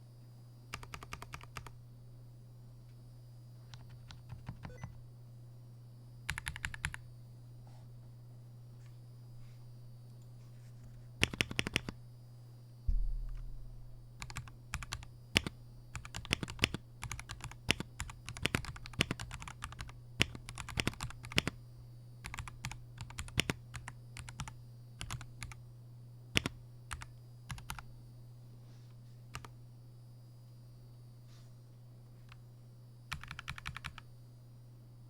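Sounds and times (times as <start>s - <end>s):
mechanical keyboard typing: 0.7s - 1.8s, 3.7s - 5.0s, 6.3s - 7.0s, 11.2s - 12.0s, 14.2s - 21.6s, 22.2s - 25.6s, 26.4s - 27.8s, 29.3s - 29.5s, 33.1s - 34.0s.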